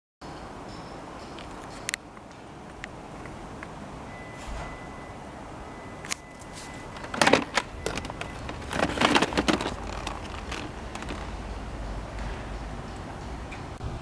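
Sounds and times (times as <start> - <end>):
plastic clattering: 6.9 - 11.4
plastic clicks: 7.0 - 11.4.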